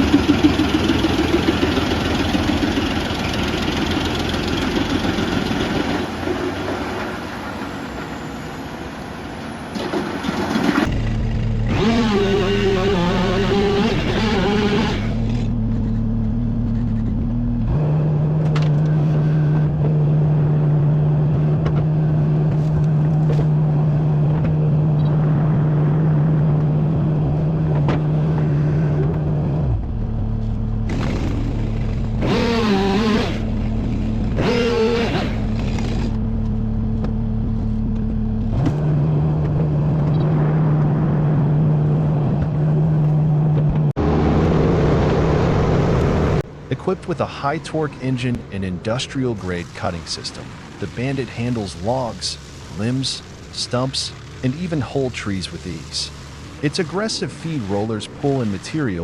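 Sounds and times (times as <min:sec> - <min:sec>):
wood chipper engine running: 0:00.0 - 0:07.1, 0:10.2 - 0:16.9, 0:18.3 - 0:39.7, 0:49.3 - 0:58.8.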